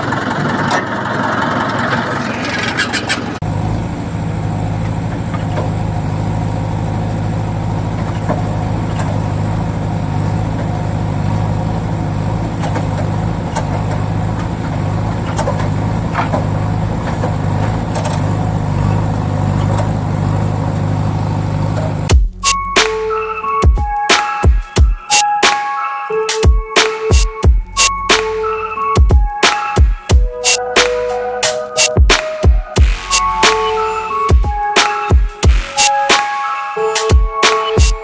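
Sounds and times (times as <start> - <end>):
steady low engine drone: 3.4 - 24.0, 32.8 - 34.7.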